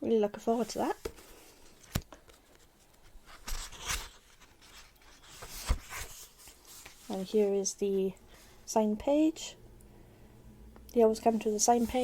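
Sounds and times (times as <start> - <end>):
book pages rustling: 0.6 - 7.6, 11.3 - 12.0.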